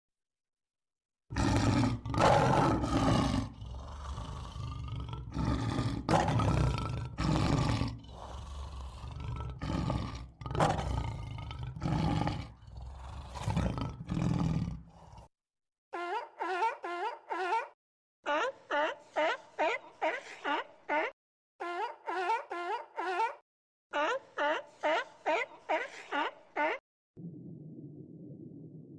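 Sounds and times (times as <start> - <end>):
lion roaring: 1.3 - 15.3.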